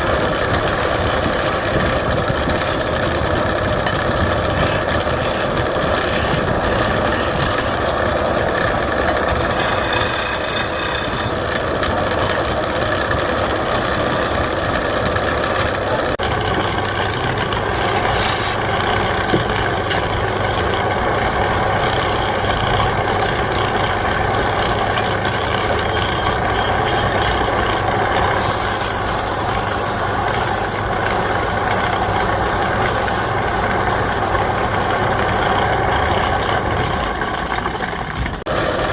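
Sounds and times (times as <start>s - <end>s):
wood lathe running: 0.0s - 38.9s.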